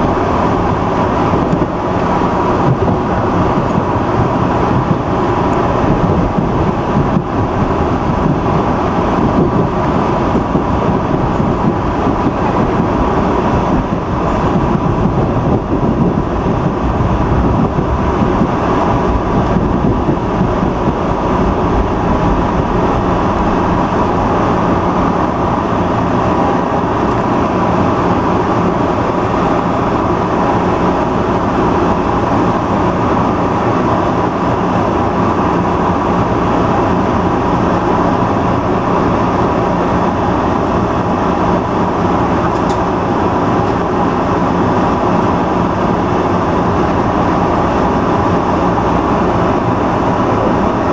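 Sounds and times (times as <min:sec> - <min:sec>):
low steady hum: 0:00.0 - 0:35.3
subway train rumble: 0:00.0 - 0:50.9.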